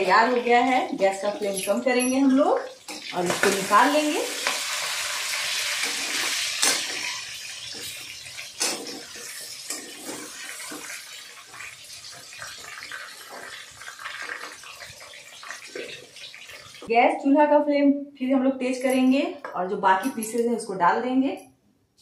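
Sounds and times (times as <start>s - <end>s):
chicken sizzling in hot oil: 2.2s - 16.9s.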